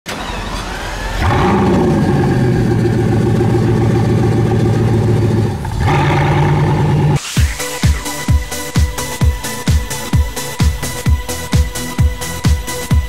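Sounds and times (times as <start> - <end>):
car engine revving: 0.3 - 7.4.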